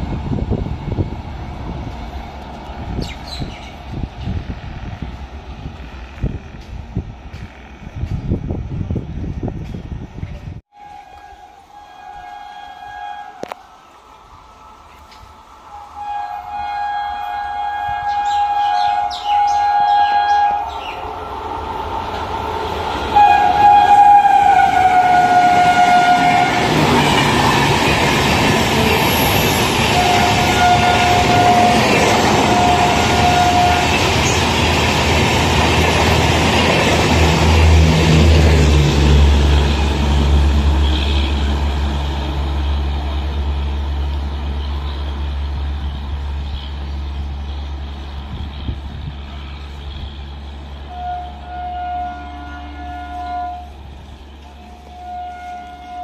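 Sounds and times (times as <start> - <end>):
train rushing past: 0.0 - 56.0
two-tone train horn: 10.7 - 21.4, 23.1 - 27.9, 28.5 - 34.7, 37.1 - 42.0, 48.3 - 56.0.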